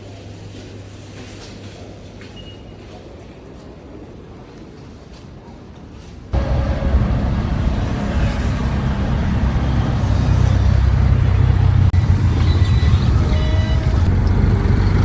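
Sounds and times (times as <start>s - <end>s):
moving vehicle rumble: 6.4s - 15.0s.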